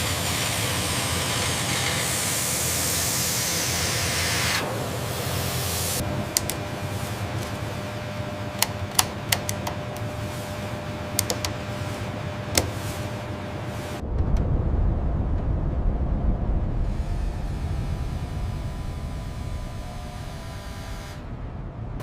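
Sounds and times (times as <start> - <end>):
mechanical hum: 0.0 - 22.0
sharp clicks: 6.3 - 6.7, 8.6 - 10.1, 11.2 - 11.6, 12.6 - 12.8
deep low rumble: 13.8 - 22.0.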